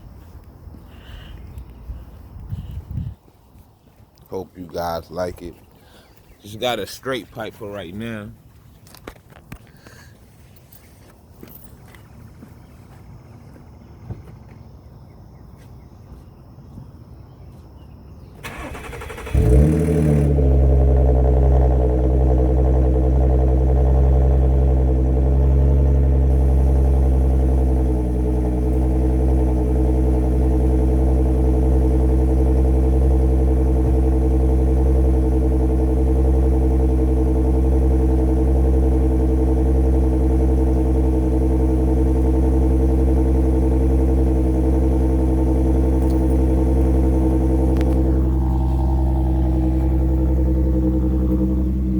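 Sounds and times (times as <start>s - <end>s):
car engine idling: 18.4s - 51.9s.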